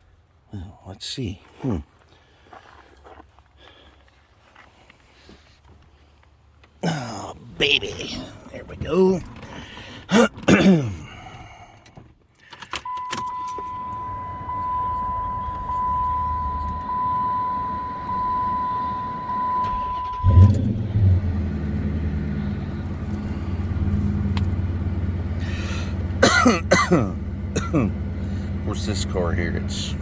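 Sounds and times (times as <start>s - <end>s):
car engine starting and idling: 6.8s - 30.0s
high warning beep: 12.9s - 21.1s.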